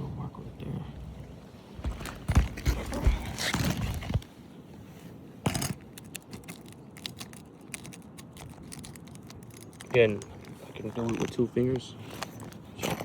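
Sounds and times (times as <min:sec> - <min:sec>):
shingle clicks and crackles: 0:05.4 - 0:13.0.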